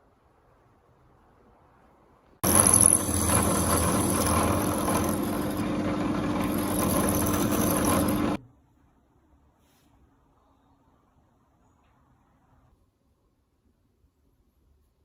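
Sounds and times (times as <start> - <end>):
electric power tool running: 2.4 - 8.4.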